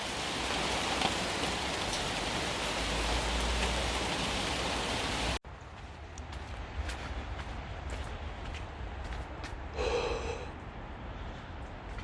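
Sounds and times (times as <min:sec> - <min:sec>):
heavy rain hissing: 0:00.0 - 0:05.4
sharp ticks of raindrops: 0:00.0 - 0:05.4.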